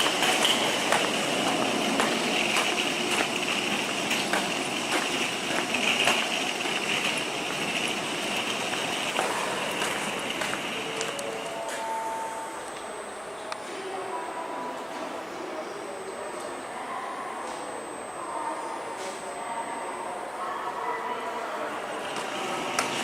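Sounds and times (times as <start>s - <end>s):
wheels clicking on rails: 0.0s - 12.0s, 21.8s - 23.0s
train rushing inside carriage: 0.0s - 17.9s, 21.1s - 23.0s.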